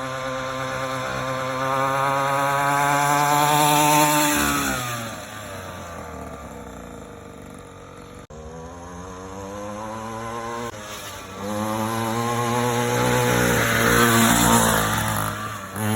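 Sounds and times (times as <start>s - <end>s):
dirt bike engine revving: 0.0s - 15.9s.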